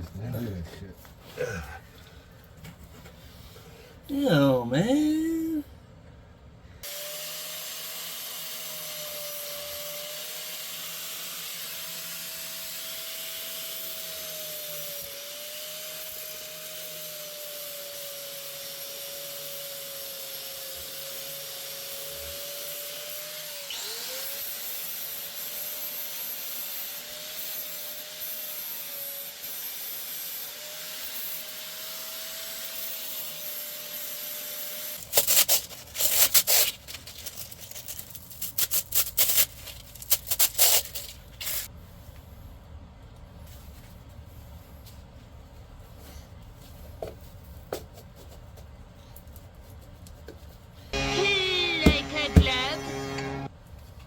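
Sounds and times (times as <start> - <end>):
electric motor machine running: 51.0 - 53.5.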